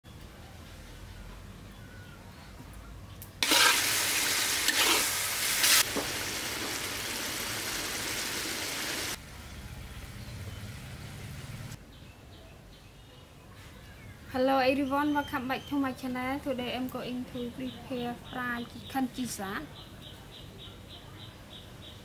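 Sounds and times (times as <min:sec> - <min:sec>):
food sizzling in a wok: 0:03.4 - 0:09.2.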